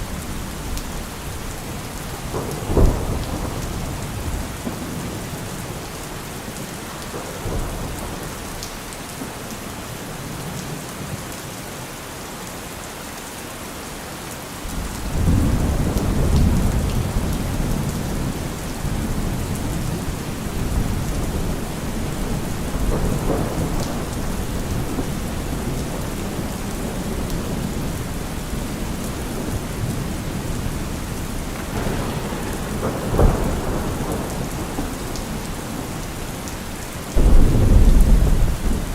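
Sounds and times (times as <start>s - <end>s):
thunder rumbling: 0.0s - 9.4s, 14.7s - 38.9s
steady rain falling: 0.0s - 38.9s
sharp thunder clap: 2.0s - 5.5s, 14.7s - 38.9s.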